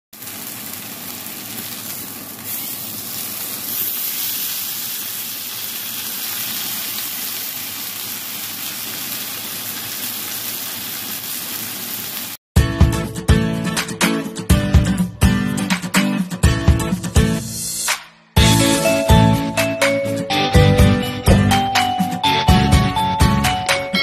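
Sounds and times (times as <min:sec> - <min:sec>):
chicken sizzling in a pan: 0:00.1 - 0:12.4
acoustic guitar music: 0:12.7 - 0:17.4, 0:18.4 - 0:24.0.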